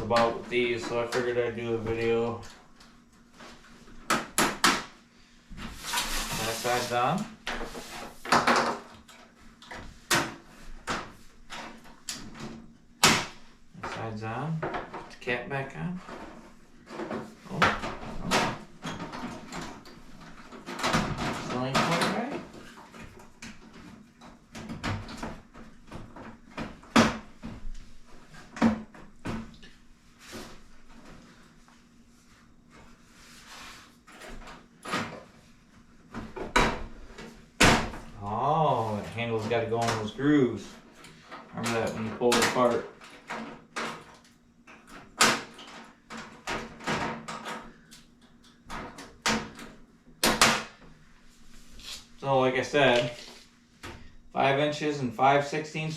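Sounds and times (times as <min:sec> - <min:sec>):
casing pieces knocking and clunking: 0:07.5 - 0:14.0.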